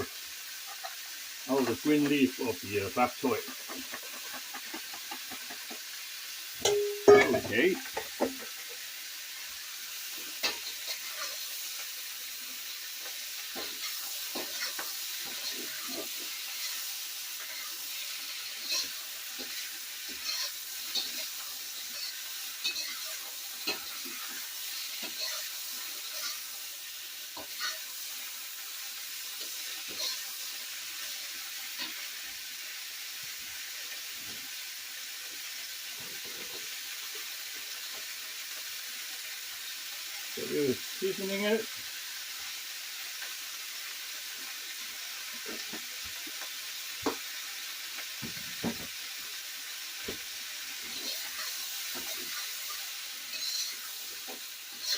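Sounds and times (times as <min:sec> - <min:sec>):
vegetables sizzling in a wok: 0:00.0 - 0:54.9
utensil scraping and knocking pan: 0:06.7 - 0:08.6.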